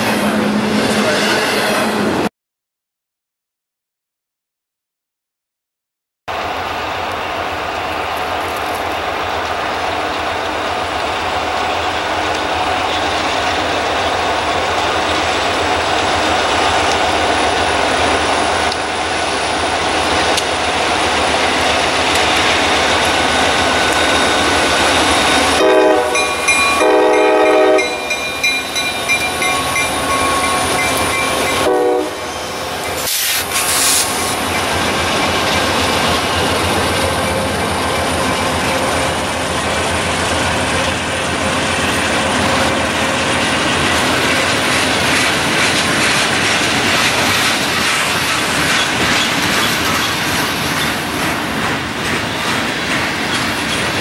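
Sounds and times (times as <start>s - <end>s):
diesel freight train passing: 0.0s - 2.3s, 6.3s - 54.0s
train horn blasts: 25.6s - 28.2s, 30.1s - 32.4s
wheels clicking on rails: 43.6s - 54.0s.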